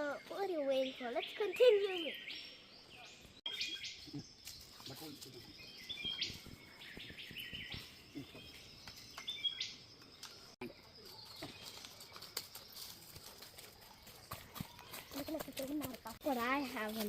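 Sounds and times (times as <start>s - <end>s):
birds calling stepped notes: 0.0s - 17.0s.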